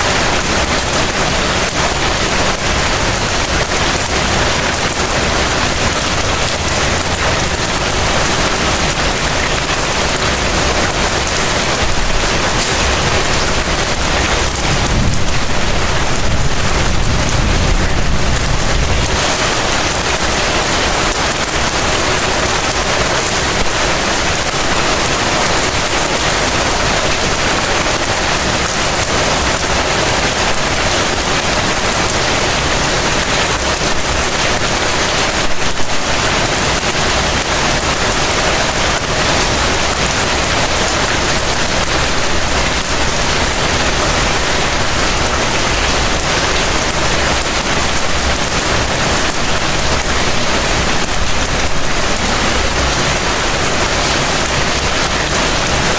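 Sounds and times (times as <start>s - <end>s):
heavy rain falling: 0.0s - 55.9s
thunder rolling: 11.8s - 21.0s.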